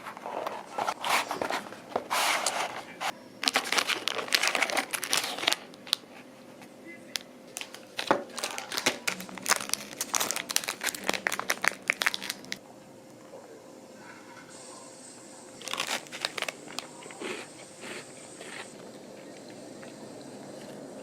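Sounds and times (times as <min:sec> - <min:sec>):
crinkling and rustling: 0:00.0 - 0:12.6, 0:15.6 - 0:16.9.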